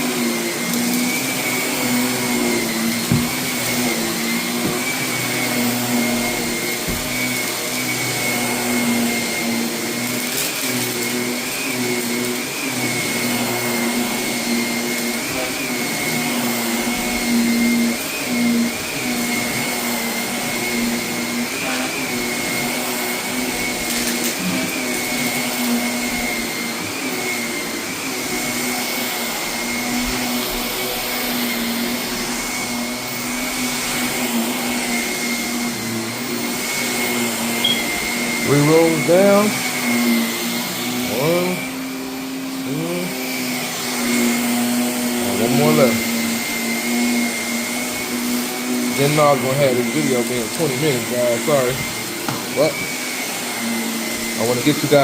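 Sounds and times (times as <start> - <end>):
vacuum cleaner motor whine: 0.0 - 55.0.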